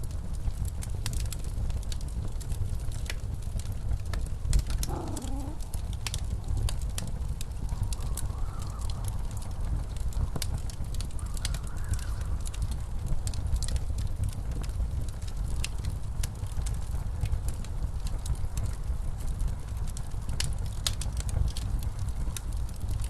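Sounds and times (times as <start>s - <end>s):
fireplace crackling and popping: 0.0s - 23.0s
wavering wind howl: 4.9s - 6.0s.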